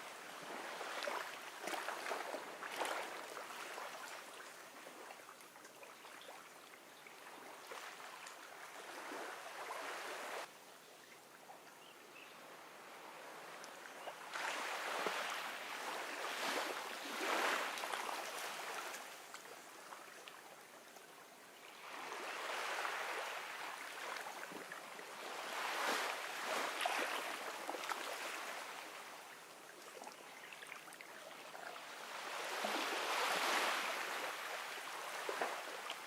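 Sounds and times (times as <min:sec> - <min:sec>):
ocean waves on a beach: 0:00.0 - 0:05.5, 0:06.2 - 0:10.5, 0:12.1 - 0:20.6, 0:21.5 - 0:36.0.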